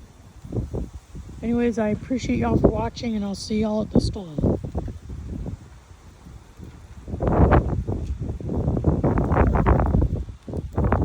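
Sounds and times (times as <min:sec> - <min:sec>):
wind buffeting microphone: 0:00.0 - 0:11.0
wind rustling leaves: 0:00.0 - 0:11.0.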